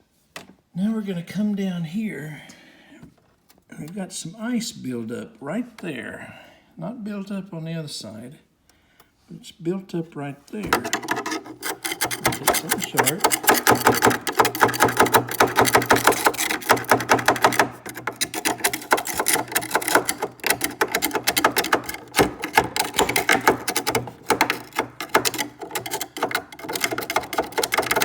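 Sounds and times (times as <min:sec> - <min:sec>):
tool chipping and scraping ice: 0:10.6 - 0:28.0.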